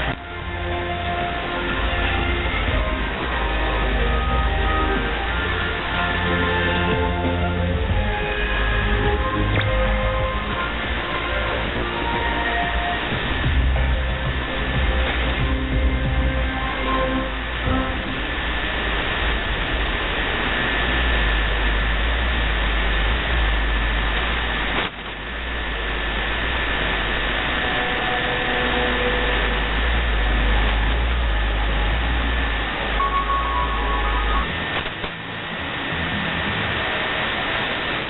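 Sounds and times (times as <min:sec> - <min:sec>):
low hum: 0:00.0 - 0:38.0
radio static hiss: 0:00.0 - 0:38.0
faint heterodyne whistle: 0:33.0 - 0:34.5
short faint tones: 0:33.0 - 0:34.8.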